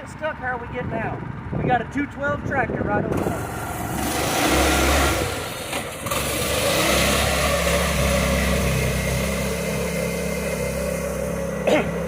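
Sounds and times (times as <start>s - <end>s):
small engine running: 3.0s - 12.0s.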